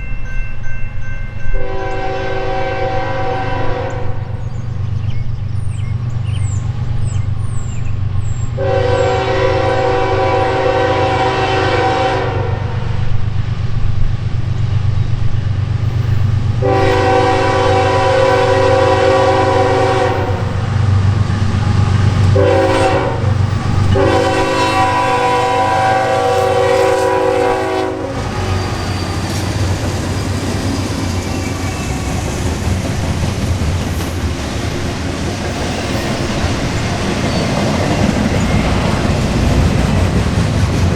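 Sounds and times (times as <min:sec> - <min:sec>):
train passing: 0:00.0 - 0:40.9
locomotive air horn: 0:01.6 - 0:04.4, 0:08.6 - 0:13.0, 0:16.6 - 0:20.6, 0:21.6 - 0:29.4.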